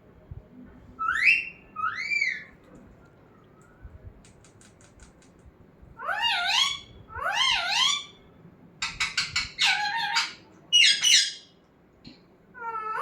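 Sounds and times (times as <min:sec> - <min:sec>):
parrot calling: 0:01.0 - 0:02.5, 0:06.0 - 0:08.2, 0:08.8 - 0:11.5
faint clicks: 0:02.6 - 0:05.5.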